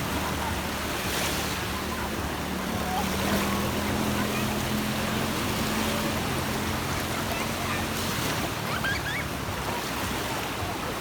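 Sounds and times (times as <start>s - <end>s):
distant motorboat engine hum: 0.0s - 11.0s
sea waves washing on shore: 0.0s - 11.0s
wind: 0.0s - 11.0s.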